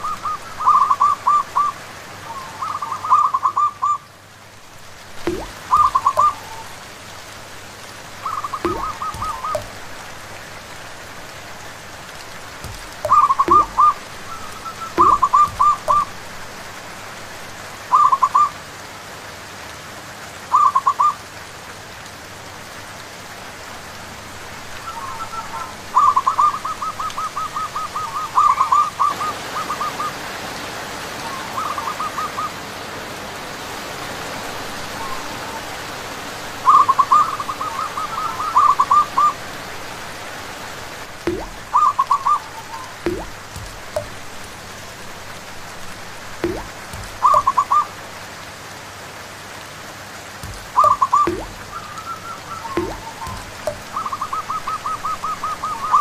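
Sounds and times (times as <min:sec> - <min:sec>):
rain hissing: 0:00.0 - 0:56.0
doves cooing: 0:05.3 - 0:06.8, 0:08.2 - 0:10.0, 0:12.8 - 0:16.1, 0:41.3 - 0:48.0.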